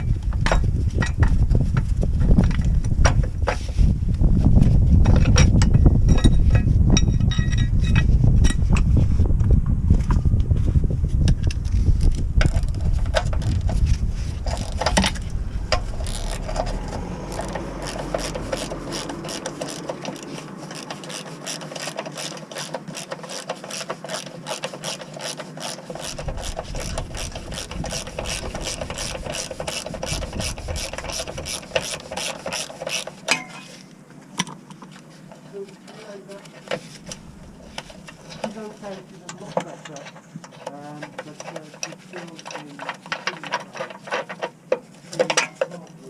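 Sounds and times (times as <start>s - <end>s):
low rumble: 0.0s - 20.6s, 26.0s - 31.8s
socket ratchet clicking: 15.7s - 33.2s.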